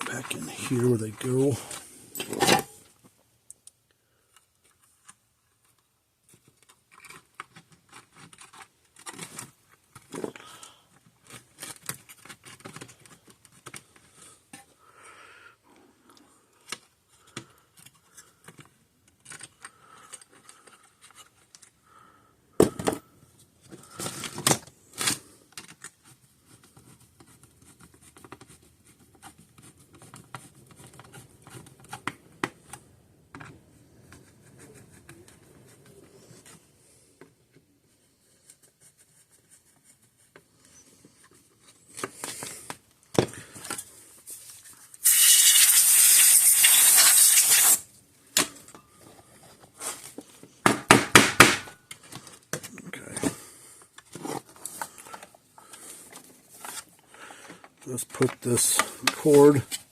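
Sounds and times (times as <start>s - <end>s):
screws clicking and rattling: 45.0s - 47.8s.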